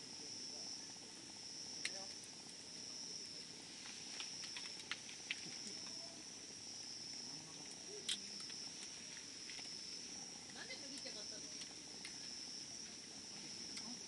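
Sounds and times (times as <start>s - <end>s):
high insect trill: 0.0s - 14.0s
wood fire crackling and popping: 0.0s - 14.0s.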